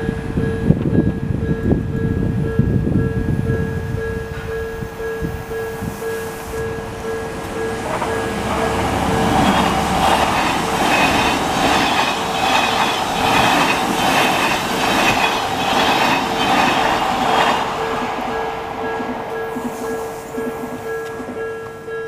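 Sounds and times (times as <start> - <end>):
level crossing warning bell dinging: 0.0 - 22.0
train wheels clattering over rail joints: 6.6 - 21.9.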